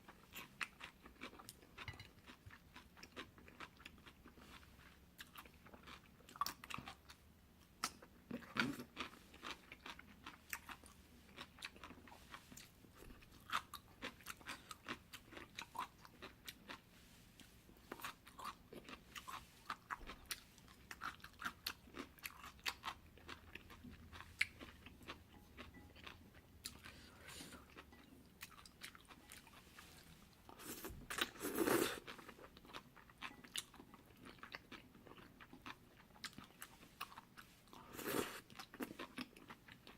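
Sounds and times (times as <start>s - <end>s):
chewing and biting noodles: 7.8s - 16.8s, 17.9s - 39.9s.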